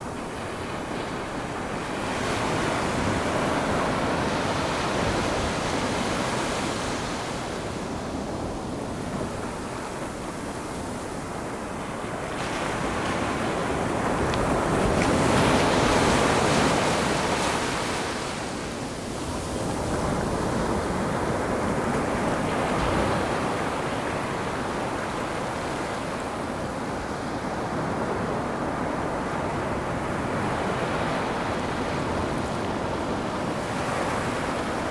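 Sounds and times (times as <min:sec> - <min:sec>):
ocean waves breaking on shore: 0:00.1 - 0:34.9.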